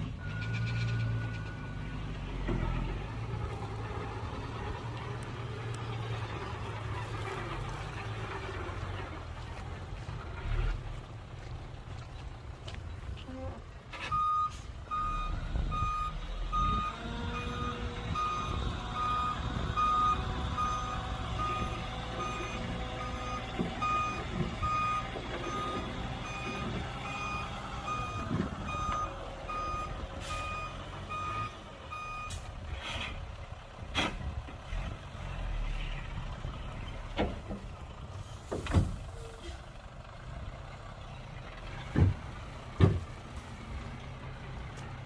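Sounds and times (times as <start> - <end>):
diesel engine rumble: 0.0 - 45.0
reversing alarm beeping: 14.1 - 32.4.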